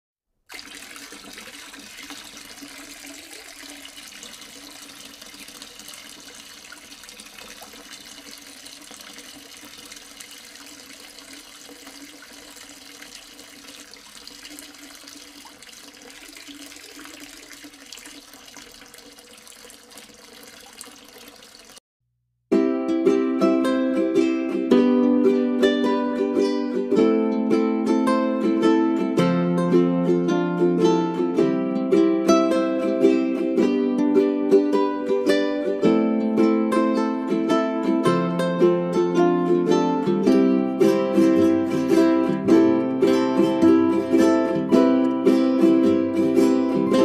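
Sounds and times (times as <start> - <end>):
water trickling in a fountain: 0.5 - 21.8.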